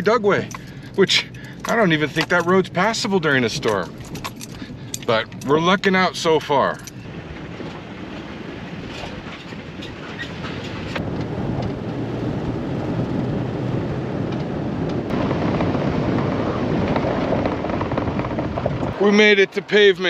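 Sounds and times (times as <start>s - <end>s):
truck driving on dirt road: 0.0s - 20.0s
light rattling: 0.3s - 11.0s.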